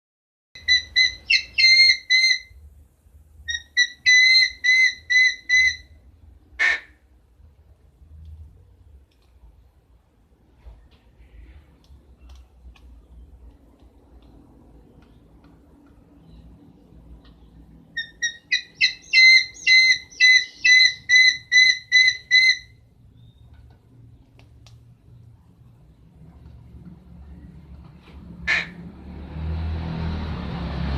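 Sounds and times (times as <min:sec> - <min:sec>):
bird whistled calls: 0:00.6 - 0:02.5, 0:18.0 - 0:23.4.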